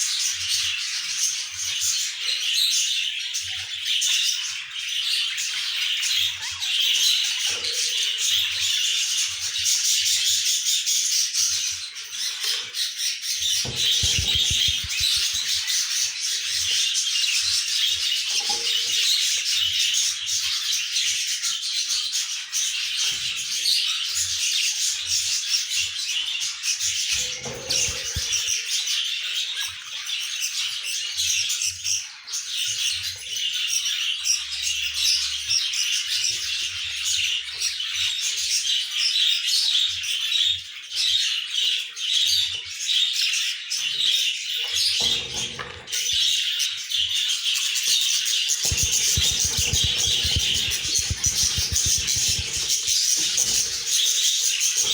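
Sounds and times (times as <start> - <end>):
budgerigars chirping: 13.6 - 15.6, 48.6 - 54.9.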